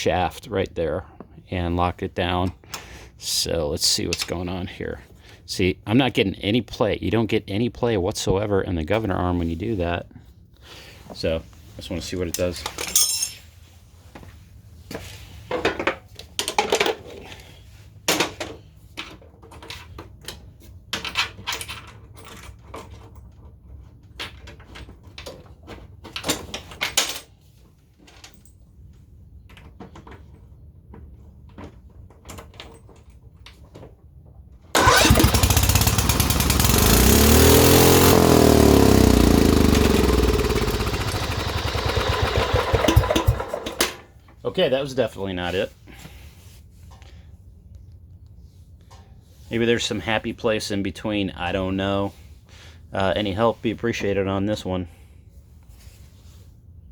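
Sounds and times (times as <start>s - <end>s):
lawn mower engine running: 34.8s - 44.0s.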